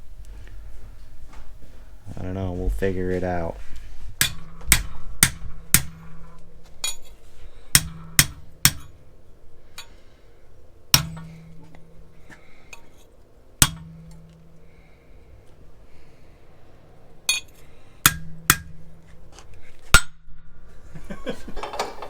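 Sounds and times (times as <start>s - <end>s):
hammer blows on metal tubing: 4.1s - 10.1s, 10.9s - 13.0s, 13.6s - 15.2s, 17.3s - 19.1s
light metal clinks: 9.7s - 10.1s.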